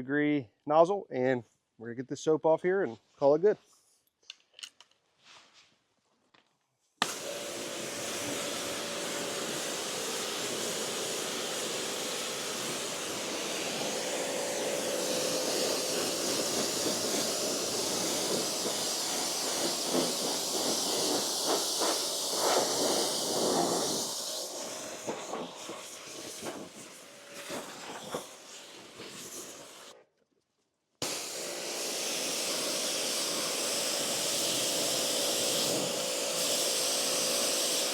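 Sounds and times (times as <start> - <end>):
pressure washer jet hissing: 7.0 - 29.9, 31.0 - 37.9.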